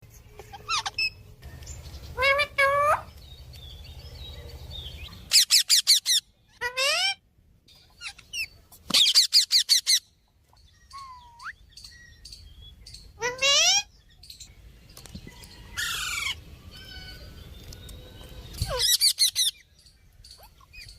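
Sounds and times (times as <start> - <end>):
parrot calling and chirping: 0.3 - 14.5, 15.7 - 17.4, 18.4 - 20.9.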